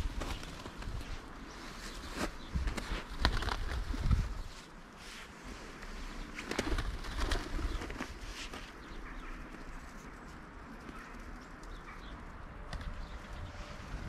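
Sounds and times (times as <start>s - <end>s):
bird calls: 6.0s - 14.0s.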